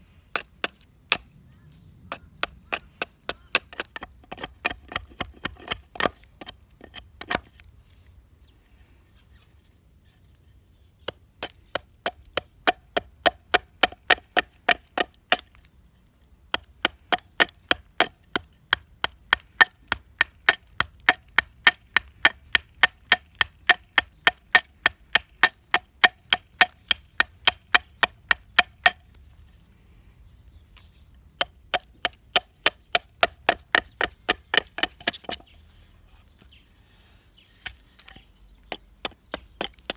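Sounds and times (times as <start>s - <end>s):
chopping strikes on hard wood: 11.1s - 15.5s, 16.5s - 29.0s, 31.4s - 35.4s, 38.7s - 39.9s.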